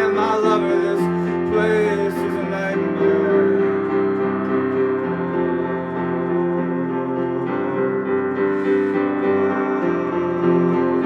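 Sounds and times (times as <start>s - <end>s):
person singing: 0.0s - 5.0s, 5.8s - 11.0s
keyboard playing sustained chords: 0.0s - 11.0s.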